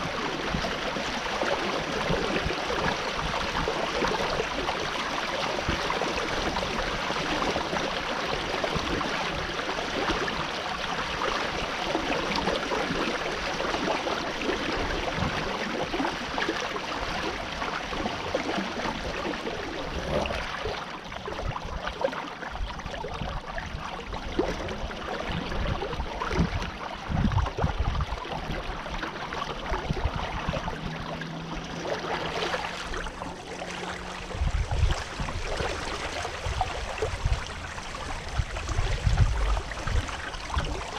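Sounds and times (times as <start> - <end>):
water rushing along a hull: 0.0 - 40.9.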